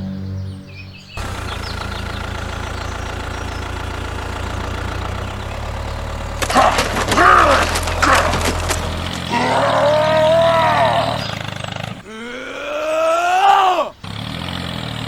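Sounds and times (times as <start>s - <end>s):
small engine idling: 1.2s - 12.0s, 14.0s - 15.0s
wavering pitched cries: 6.4s - 11.5s.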